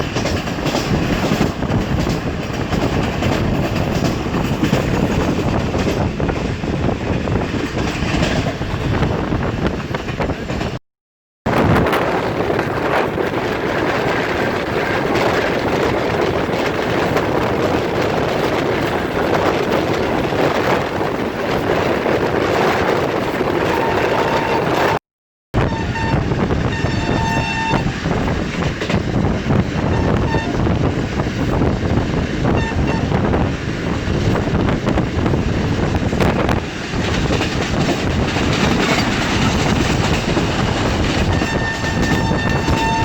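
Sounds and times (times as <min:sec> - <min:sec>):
train wheels rattling on rail: 0:00.0 - 0:10.8, 0:11.5 - 0:25.0, 0:25.6 - 0:43.0
train horn blasts: 0:23.7 - 0:25.0, 0:25.6 - 0:28.0, 0:29.8 - 0:30.7, 0:32.4 - 0:33.2, 0:41.3 - 0:43.0.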